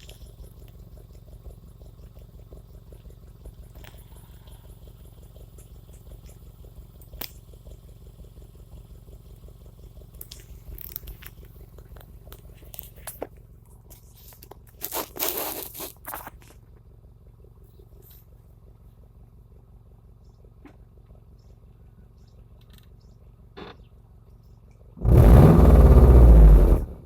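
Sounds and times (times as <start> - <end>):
car engine idling: 0.0 - 14.8, 16.2 - 27.0
burst of noise: 25.0 - 27.0.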